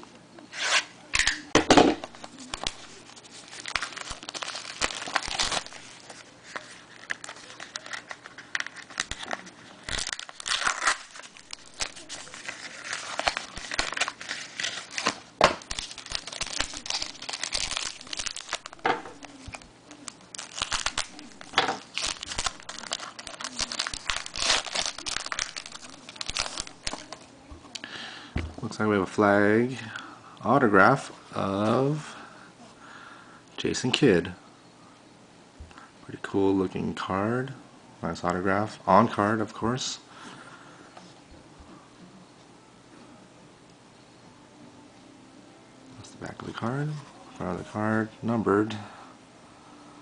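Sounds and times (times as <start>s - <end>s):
wrapper crinkling and tearing: 2.0s - 27.3s.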